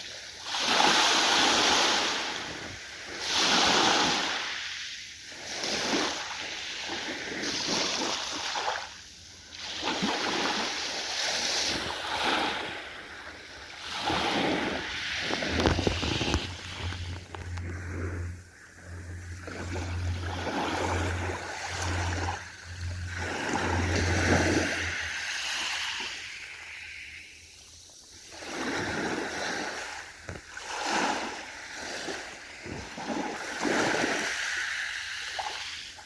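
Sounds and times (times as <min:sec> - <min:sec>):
ocean waves breaking: 0:00.0 - 0:36.0
low steady hum: 0:12.8 - 0:28.0.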